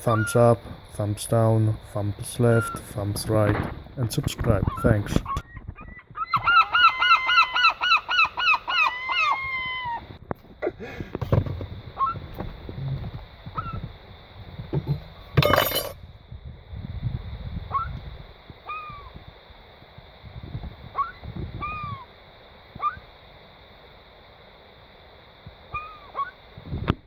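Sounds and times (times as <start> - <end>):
gulls calling: 0.0 - 10.2, 18.6 - 19.2, 20.9 - 23.2, 25.7 - 26.5.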